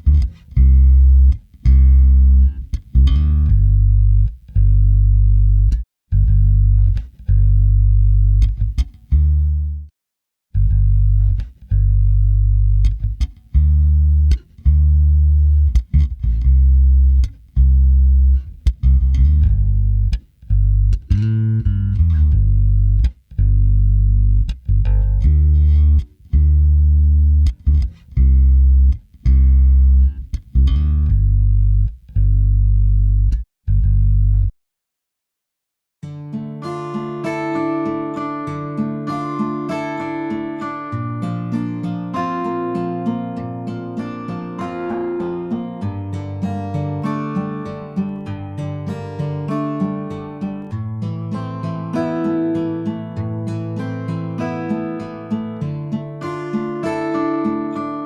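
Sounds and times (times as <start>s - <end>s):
electric bass guitar riff: 0.0s - 9.9s, 10.5s - 34.5s, 37.0s - 58.0s.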